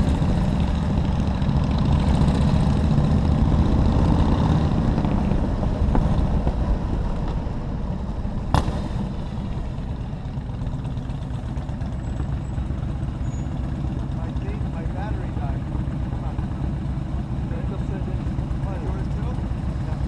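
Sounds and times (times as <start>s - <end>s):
motorcycle engine running: 0.0s - 20.0s
sharp knock: 8.5s - 9.0s.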